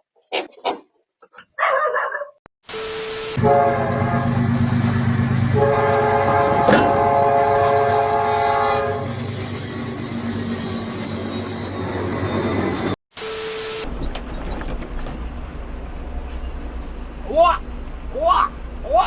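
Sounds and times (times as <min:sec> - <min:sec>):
train horn chord: 0:03.4 - 0:04.7
train rumble: 0:03.4 - 0:09.1.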